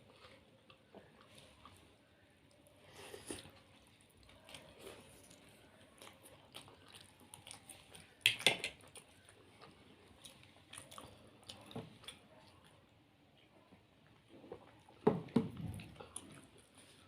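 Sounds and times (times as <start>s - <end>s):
chewing and biting food: 3.2s - 12.8s.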